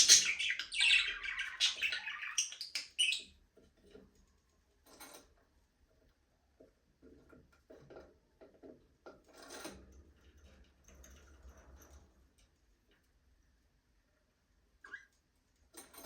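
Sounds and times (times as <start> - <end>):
budgerigar chirps: 0.0 - 3.2.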